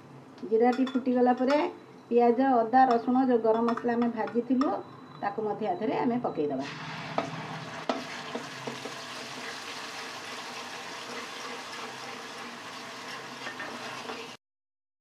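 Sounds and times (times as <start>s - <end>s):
sizzling in hot oil: 6.6s - 14.4s.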